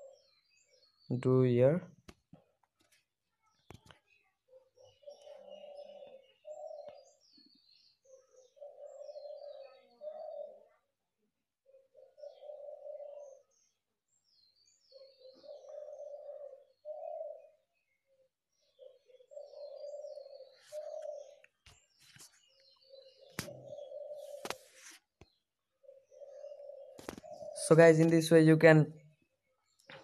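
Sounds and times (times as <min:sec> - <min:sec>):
low bird call: 0:18.8 - 0:25.0.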